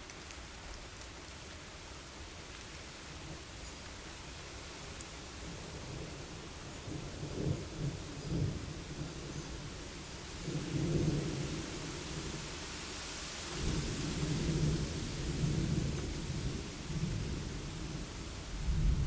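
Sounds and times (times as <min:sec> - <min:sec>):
steady rain: 0:00.0 - 0:19.0
thunder rumbling low: 0:18.6 - 0:19.0.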